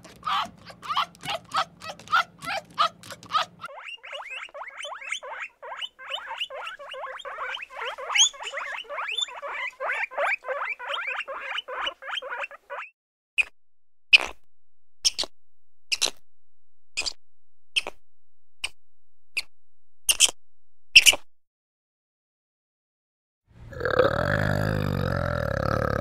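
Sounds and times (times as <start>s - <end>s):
animal squeaking chirps: 0.0s - 13.5s, 14.1s - 14.4s, 15.0s - 15.3s, 15.9s - 16.2s, 17.0s - 17.2s, 17.8s - 18.0s, 18.6s - 19.5s, 20.1s - 21.3s.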